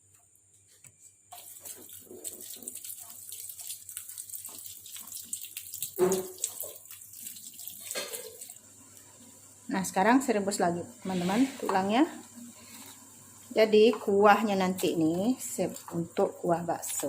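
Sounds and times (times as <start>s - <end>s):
tap running into sink: 5.9s - 6.8s.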